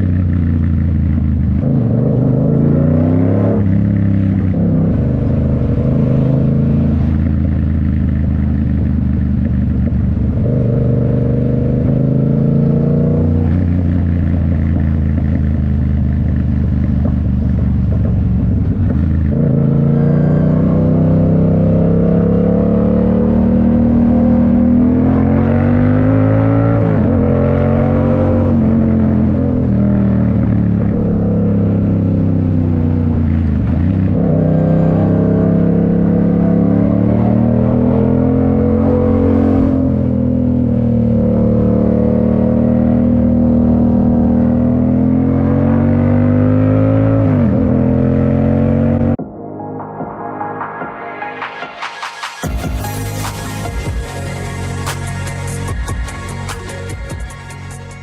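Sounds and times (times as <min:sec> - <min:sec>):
motorcycle engine accelerating: 0:00.0 - 0:51.0.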